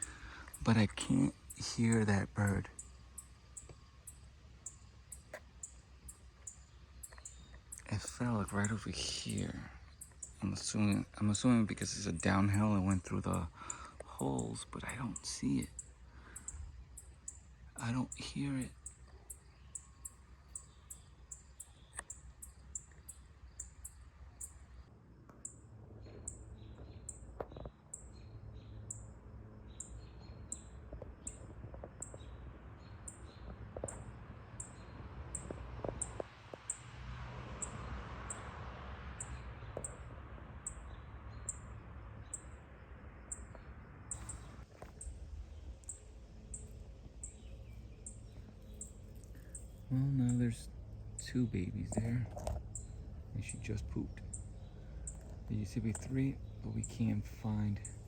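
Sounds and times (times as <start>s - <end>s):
low outdoor rumble: 0.0s - 58.0s
soft rushing hiss: 43.5s - 58.0s.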